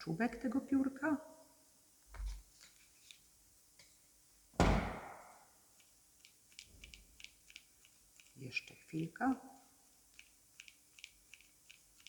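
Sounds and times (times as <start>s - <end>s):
dull thump on table: 4.6s - 5.3s.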